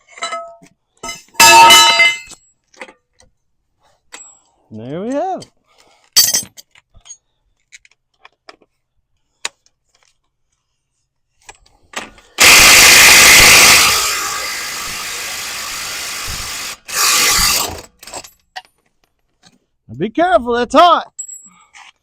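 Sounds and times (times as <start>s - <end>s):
power tool running: 12.4s - 17.9s.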